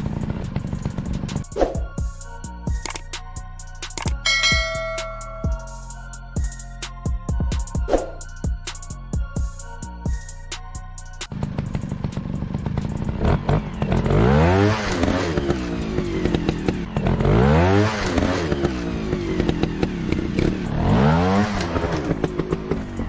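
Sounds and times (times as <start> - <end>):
dirt bike engine revving: 0.0 - 1.4, 11.3 - 23.0
clicks and clatter: 3.8 - 4.2.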